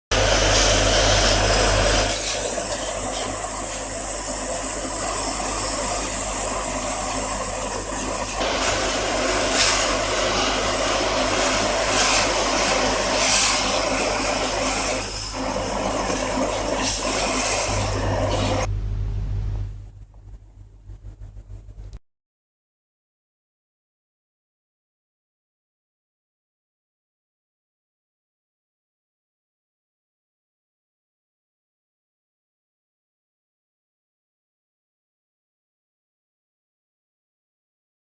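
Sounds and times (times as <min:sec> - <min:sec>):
machine hissing: 0:00.1 - 0:18.7
low machine hum: 0:13.8 - 0:22.0.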